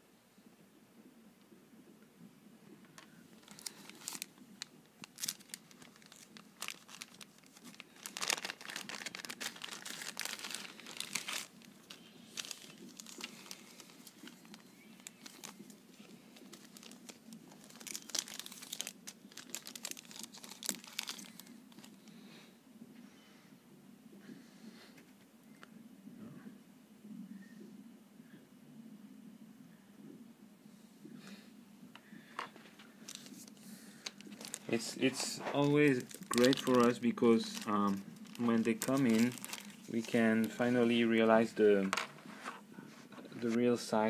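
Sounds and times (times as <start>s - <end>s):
packaging crinkling: 3.0s - 22.0s, 32.5s - 42.6s
packaging tearing: 3.4s - 21.9s, 33.1s - 40.6s.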